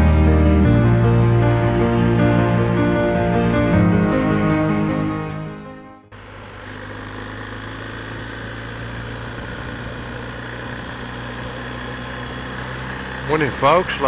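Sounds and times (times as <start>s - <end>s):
motorcycle engine running steadily: 6.1s - 14.0s.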